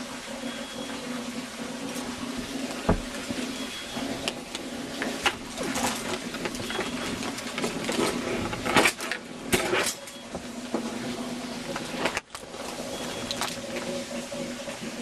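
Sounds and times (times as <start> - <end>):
rustling and knocking: 2.6 - 3.6.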